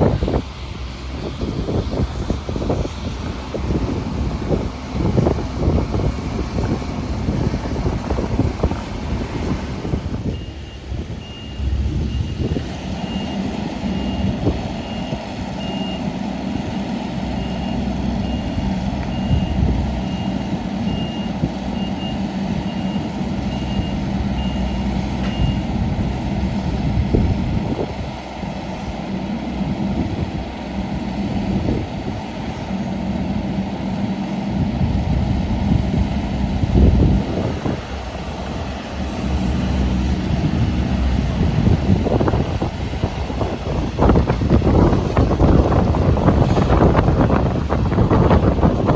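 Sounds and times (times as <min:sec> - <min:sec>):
excavator diesel engine running: 0:00.0 - 0:48.9
travel alarm beeping: 0:10.2 - 0:25.8.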